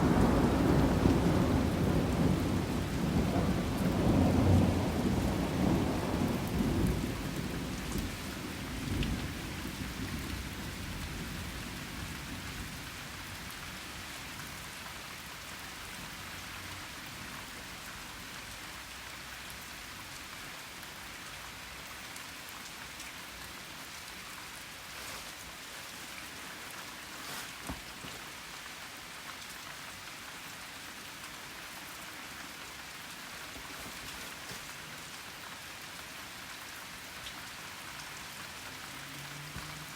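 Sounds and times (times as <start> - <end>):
thunder rumble: 0.0 - 12.5
rain falling on surfaces: 0.0 - 39.9.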